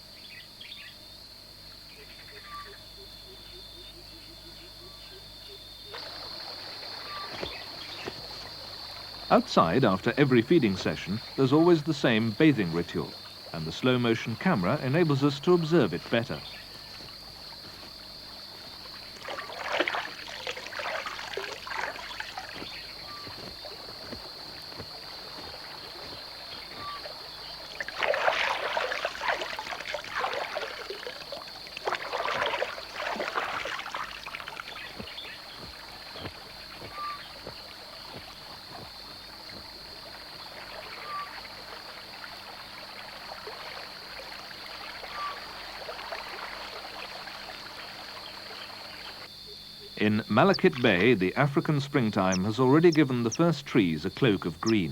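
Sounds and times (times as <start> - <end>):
high-pitched insect drone: 0.6 - 41.8
birds splashing in water: 5.9 - 49.3, 50.3 - 54.9.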